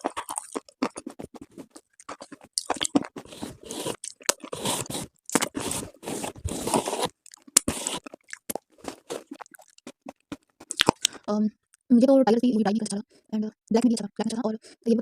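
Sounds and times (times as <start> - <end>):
slate crunching: 0.0 - 11.2.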